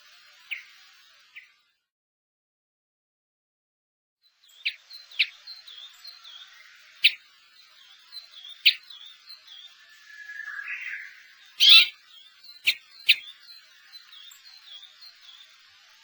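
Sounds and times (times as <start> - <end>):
finches chirping: 0.0 - 1.6, 4.4 - 16.0
finch ticking calls: 4.6 - 15.5.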